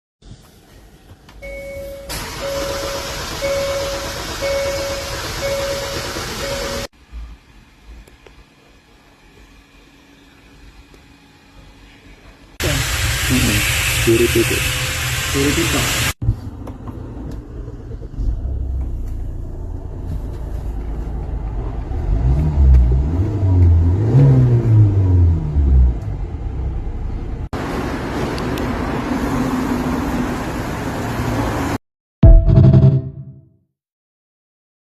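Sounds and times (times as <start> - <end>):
car engine cranking: 2.1 - 6.9.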